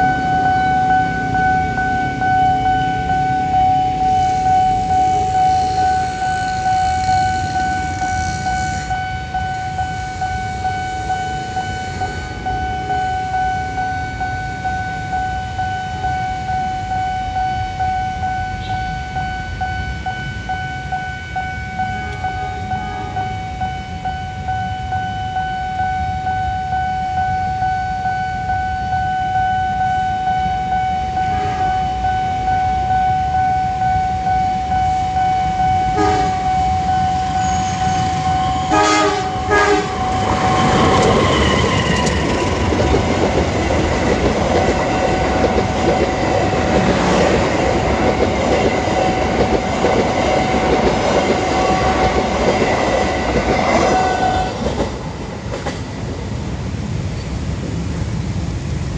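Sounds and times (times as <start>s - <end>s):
level crossing alarm tone: 0.0s - 54.8s
train horn blasts: 2.8s - 15.6s, 18.2s - 24.0s, 30.1s - 42.5s, 53.6s - 54.8s
train wheels clickety-clack: 40.0s - 56.2s.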